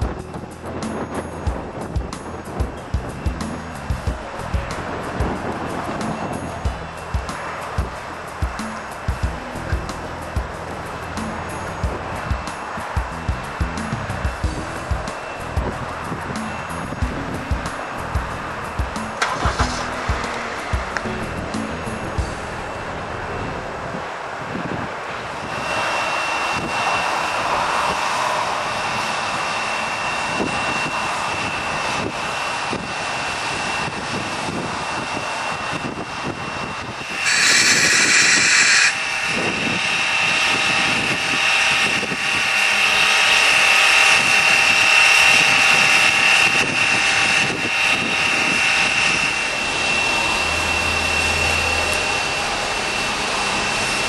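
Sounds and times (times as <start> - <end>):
steam locomotive hissing roar: 0.0 - 54.0
steam blast: 19.2 - 20.9, 37.0 - 39.8.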